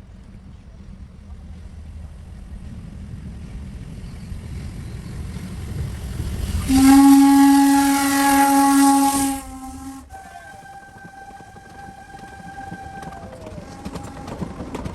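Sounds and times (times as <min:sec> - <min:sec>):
train rumbling: 0:00.0 - 0:14.9
steam hissing: 0:04.2 - 0:14.9
steam locomotive whistle: 0:06.5 - 0:14.9.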